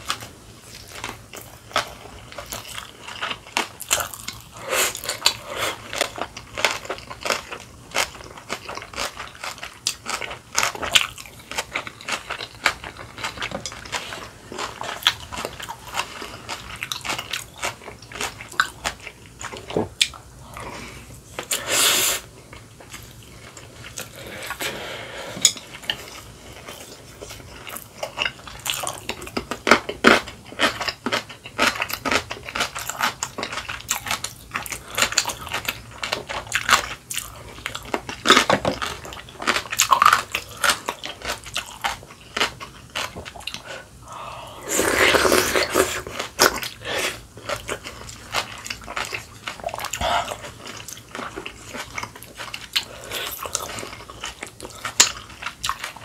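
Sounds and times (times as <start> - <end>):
chewing and crunching food: 0.0 - 21.7, 22.3 - 56.0.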